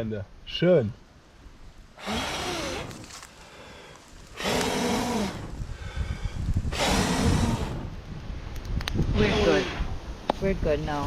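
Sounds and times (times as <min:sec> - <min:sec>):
person blowing on fire: 0:02.0 - 0:08.2.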